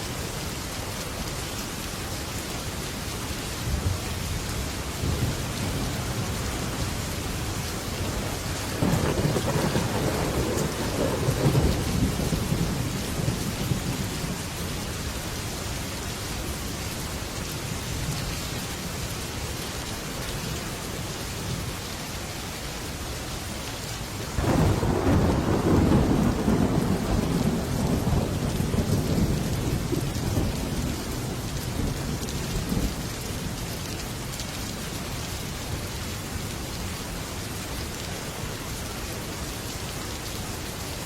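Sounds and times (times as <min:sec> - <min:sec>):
heavy rain on a metal roof: 0:00.0 - 0:41.0
thunder clap and rumble: 0:03.7 - 0:14.6, 0:24.4 - 0:33.2.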